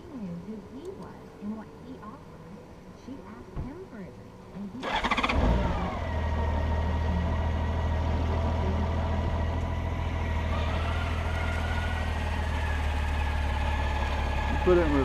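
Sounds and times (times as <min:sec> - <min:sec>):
motorcycle engine idling: 0:04.8 - 0:15.0.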